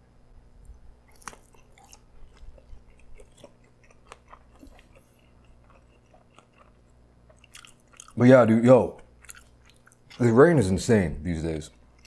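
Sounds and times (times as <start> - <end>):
chewing crunches: 0.6 - 8.2, 8.9 - 10.6, 11.6 - 12.0.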